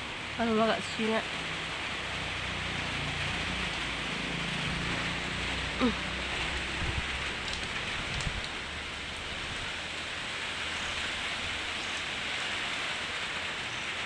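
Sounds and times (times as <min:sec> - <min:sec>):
heavy rain falling: 0:00.0 - 0:14.0
faint drips: 0:00.4 - 0:12.8.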